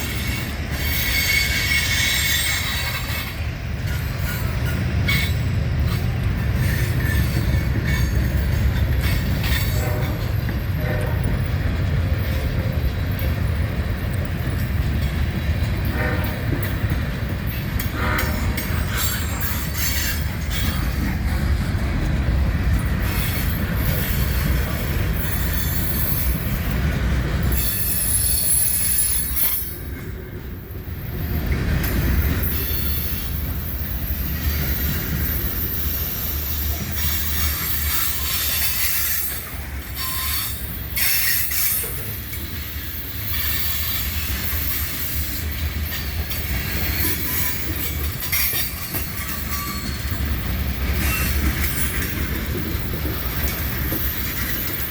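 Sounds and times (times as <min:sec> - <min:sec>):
train rumbling on rails: 0:00.0 - 0:54.9
high-pitched wheel squeal: 0:40.0 - 0:41.6.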